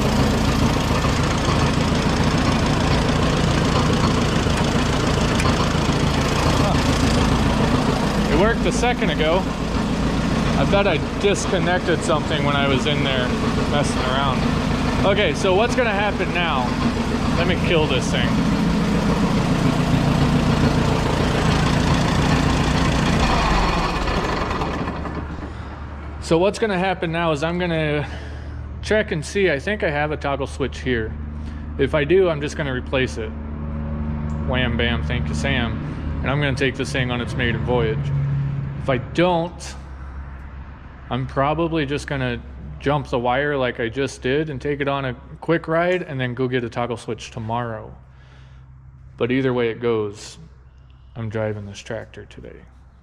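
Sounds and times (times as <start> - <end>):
tractor engine idling: 0.0 - 53.0.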